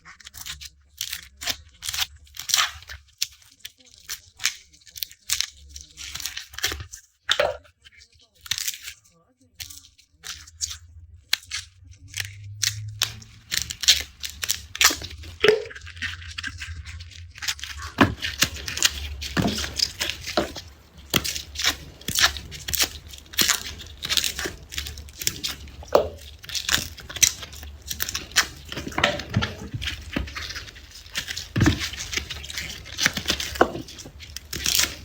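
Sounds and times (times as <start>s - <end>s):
garlic skins crackling and tearing: 0.2s - 7.5s, 8.4s - 9.0s, 9.6s - 35.0s
faint low hum: 9.4s - 35.0s.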